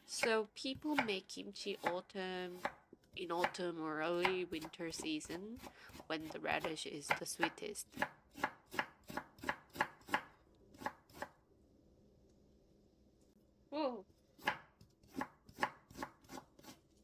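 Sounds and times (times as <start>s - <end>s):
knife chopping on cutting board: 0.2s - 2.0s, 2.6s - 2.8s, 4.2s - 11.4s, 14.4s - 16.8s.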